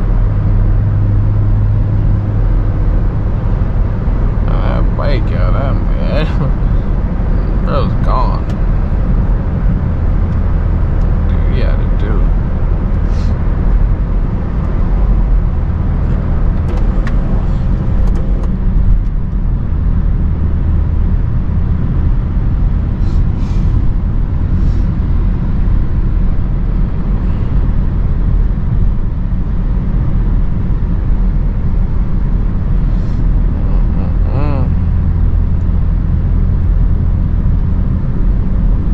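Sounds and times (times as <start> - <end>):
car exhaust deep rumble: 0.0 - 38.9.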